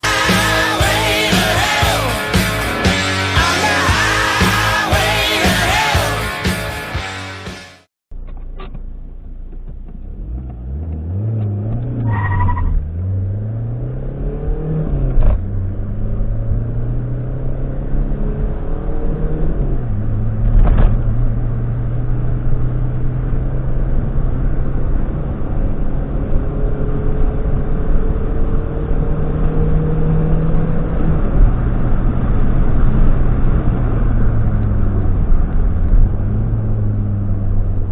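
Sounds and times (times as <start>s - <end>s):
diesel engine accelerating: 0.0s - 37.9s
gear shift click: 8.2s - 12.0s.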